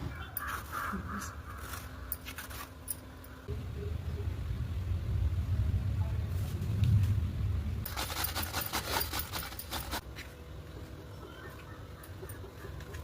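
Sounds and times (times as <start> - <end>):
low steady rumble: 2.8 - 8.0.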